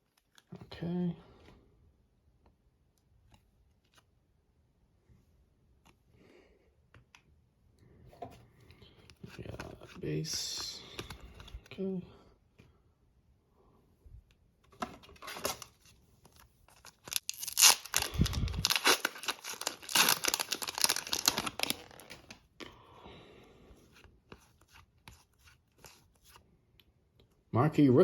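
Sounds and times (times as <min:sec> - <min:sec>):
foil wrapper tearing and crinkling: 0:16.7 - 0:22.4.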